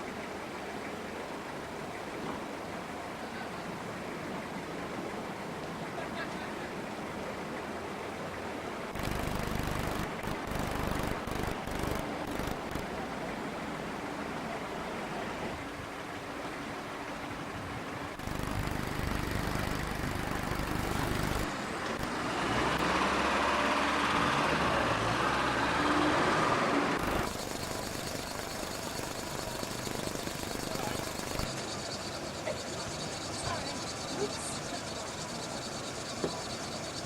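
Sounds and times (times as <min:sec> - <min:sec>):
heavy diesel engines running: 0:09.0 - 0:13.5, 0:18.2 - 0:37.0.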